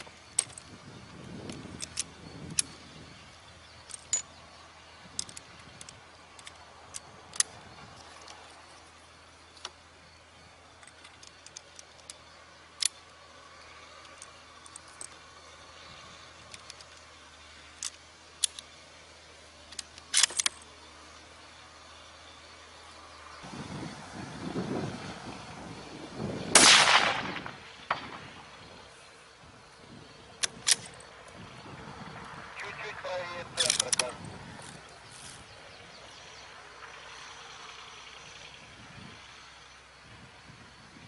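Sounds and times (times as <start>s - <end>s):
rifle being handled clicks: 33.6s - 34.2s.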